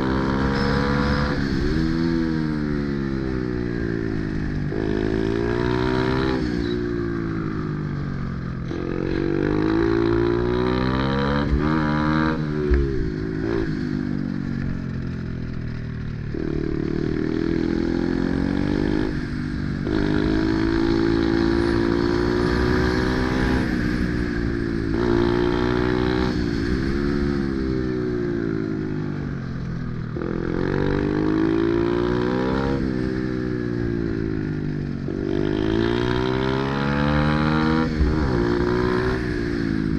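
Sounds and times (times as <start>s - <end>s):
motorbike engine revving: 16.3s - 27.7s.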